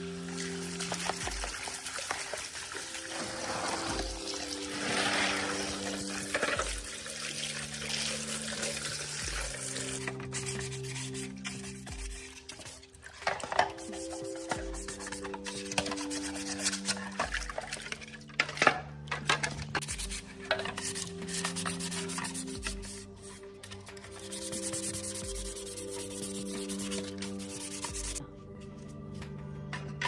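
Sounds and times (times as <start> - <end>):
background music: 0.0 - 30.0
scrubbing a hard surface: 3.0 - 18.0, 19.8 - 23.4, 24.1 - 28.2.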